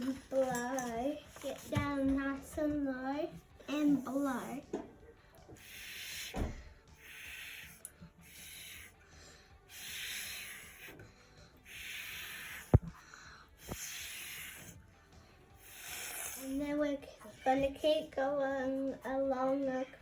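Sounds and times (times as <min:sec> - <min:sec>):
breath puffs through a straw: 0:05.5 - 0:14.8, 0:15.5 - 0:16.6.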